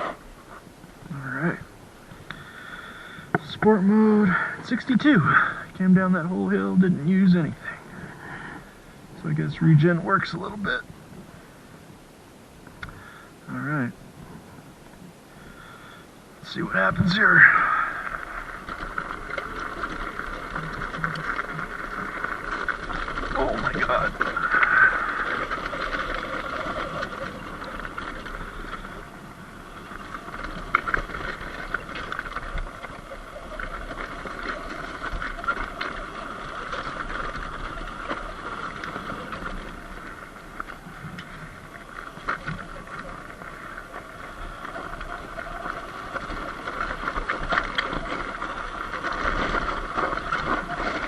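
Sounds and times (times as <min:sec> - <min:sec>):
tyres on gravel: 0:00.0 - 0:12.0, 0:12.6 - 0:51.0
ticks and rattles: 0:16.4 - 0:51.0.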